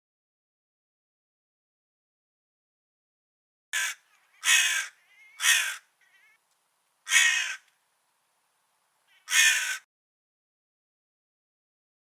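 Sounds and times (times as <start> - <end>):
crow cawing: 3.8 - 6.4, 7.0 - 7.7, 9.1 - 9.9.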